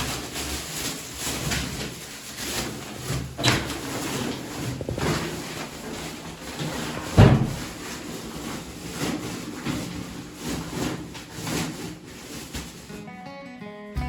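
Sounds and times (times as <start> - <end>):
objects knocking and scraping: 0.0 - 13.0
heavy thump: 4.7 - 5.6.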